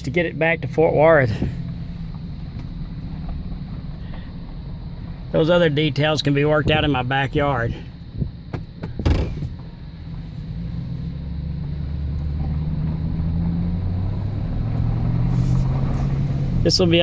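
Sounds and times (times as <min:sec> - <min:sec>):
pickup truck engine hum: 0:00.0 - 0:17.0.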